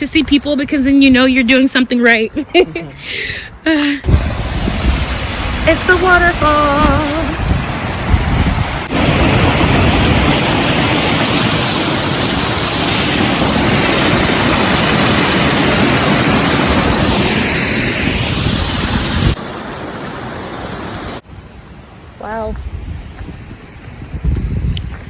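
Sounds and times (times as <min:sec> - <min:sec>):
waterfall rushing: 0:04.0 - 0:21.3.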